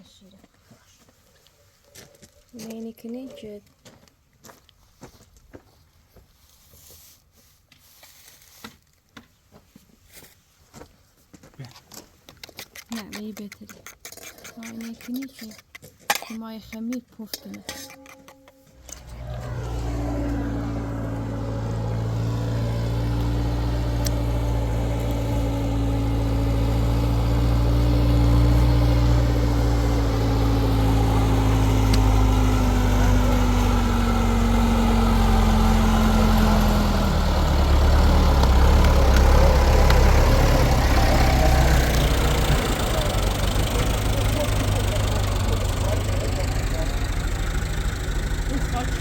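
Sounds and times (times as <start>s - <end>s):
motor humming: 18.8s - 49.0s.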